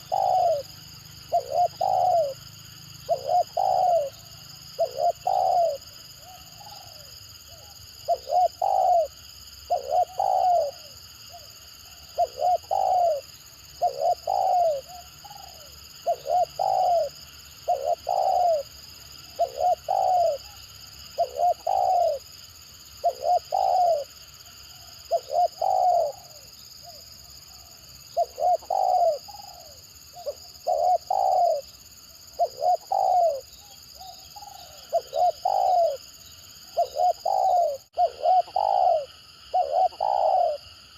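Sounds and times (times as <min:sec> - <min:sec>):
dove cooing: 0:00.0 - 0:22.3, 0:23.0 - 0:40.7.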